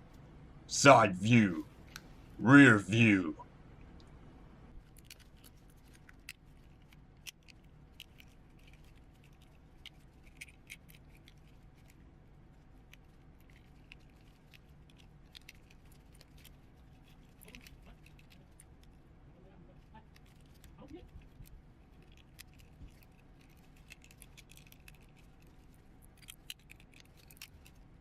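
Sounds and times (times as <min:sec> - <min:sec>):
toy parts clicking and rattling: 0:04.8 - 0:12.0, 0:12.8 - 0:19.0, 0:20.0 - 0:27.9.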